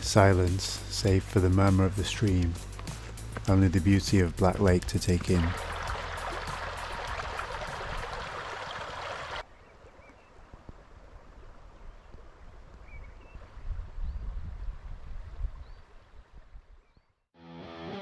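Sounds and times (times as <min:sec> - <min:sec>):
stream water rushing: 0:00.0 - 0:09.4.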